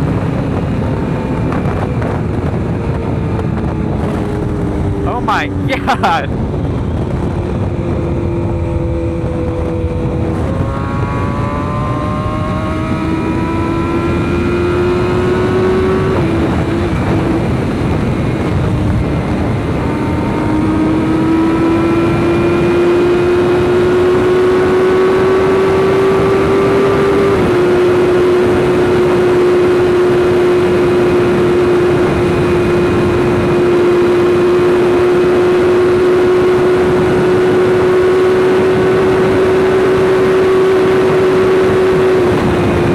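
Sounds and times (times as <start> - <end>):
motorcycle engine accelerating: 0.0 - 42.9
wind noise: 0.0 - 42.9.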